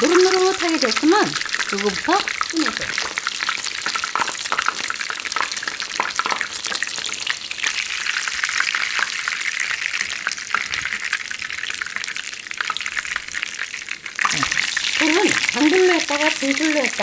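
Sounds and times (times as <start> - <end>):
fish sizzling in frying pan: 0.0 - 17.0.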